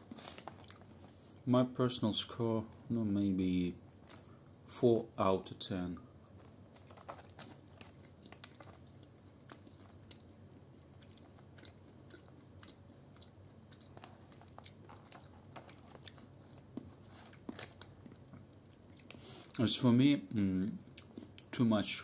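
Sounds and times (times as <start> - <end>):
low steady hum: 0.0 - 22.0
crunchy snack chewing: 0.1 - 0.9, 6.2 - 19.2.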